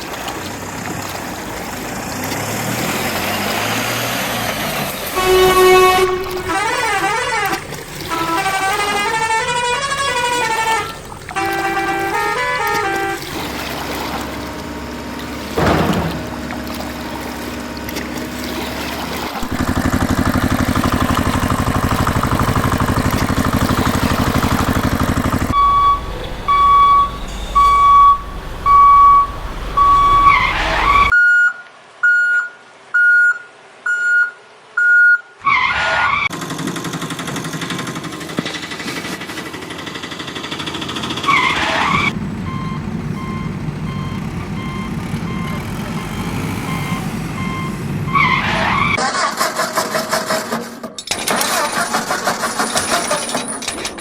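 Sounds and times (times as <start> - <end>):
heavy vehicle engines running: 0.0 - 31.1, 36.3 - 49.6
electronic beeps: 25.5 - 35.2.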